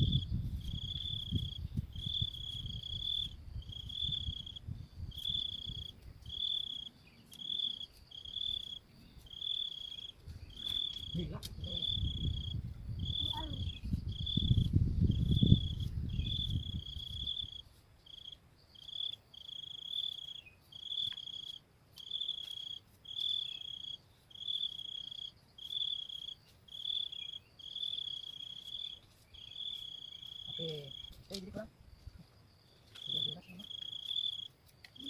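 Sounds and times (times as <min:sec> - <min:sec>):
low rumble: 0:00.0 - 0:05.9
cricket chirping: 0:00.0 - 0:35.0.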